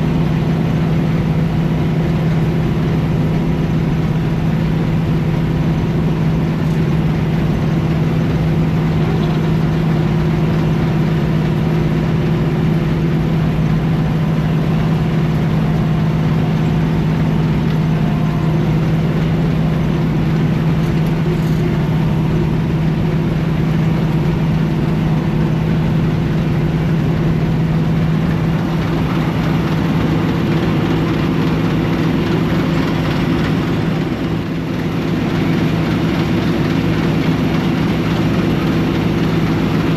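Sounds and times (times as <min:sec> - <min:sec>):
heavy engine humming: 0:00.0 - 0:39.9.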